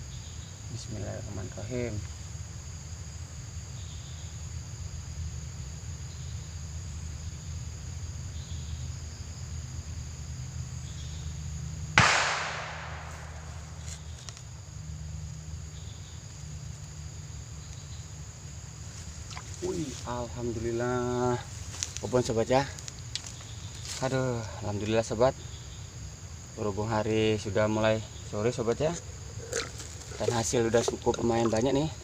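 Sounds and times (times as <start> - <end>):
insects droning: 0.0 - 32.0
loud echoing bang: 12.0 - 14.0
low hum: 12.0 - 14.2.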